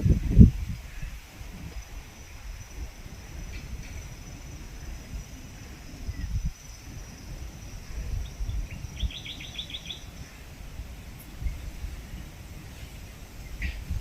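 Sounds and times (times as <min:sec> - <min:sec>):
wind buffeting microphone: 0:00.0 - 0:14.0
bird chirping: 0:01.9 - 0:10.5.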